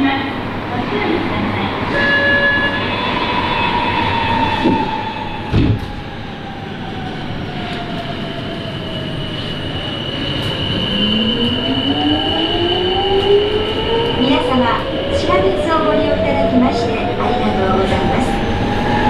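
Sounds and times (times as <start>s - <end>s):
subway train running noise: 0.0s - 19.0s
thud: 5.5s - 6.0s.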